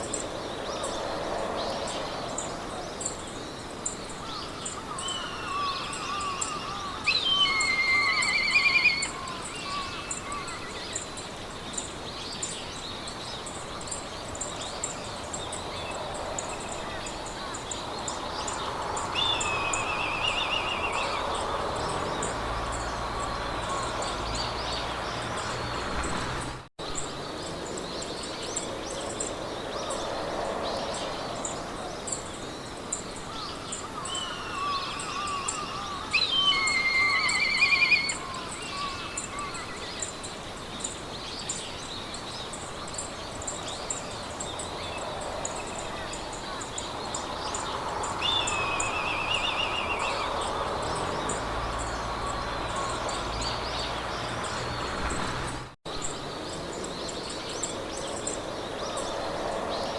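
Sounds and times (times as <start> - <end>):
wind through grass: 0.0 - 59.9
songbirds singing trilled phrases: 3.8 - 25.8, 33.3 - 40.2, 40.8 - 59.1.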